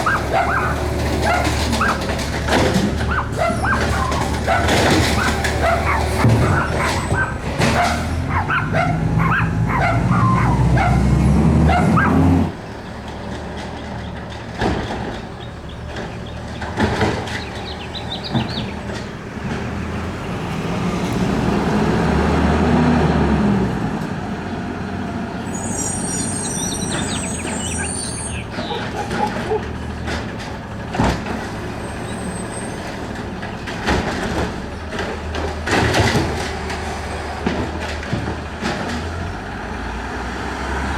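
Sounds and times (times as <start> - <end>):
sharp clanks and knocks: 0.0 - 11.0, 11.7 - 20.1, 26.8 - 39.5
garbage truck diesel engine revving: 0.0 - 40.9.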